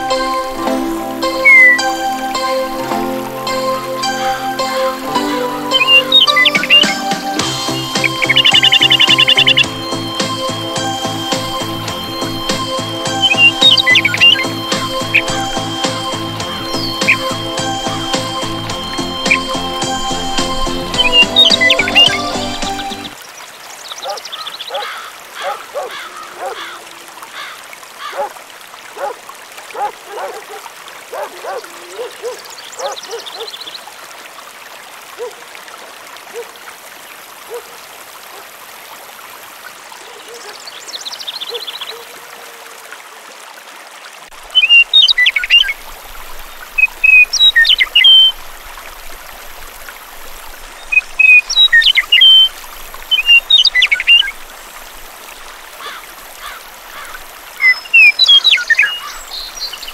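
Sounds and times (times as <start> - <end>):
birds chirping and trilling: 0.0 - 23.2, 23.8 - 28.3, 29.8 - 33.8, 40.0 - 42.1, 44.5 - 48.5, 50.8 - 54.5, 55.3 - 59.9
water trickling: 0.0 - 59.9
loud sharp bird chirps: 1.4 - 1.8.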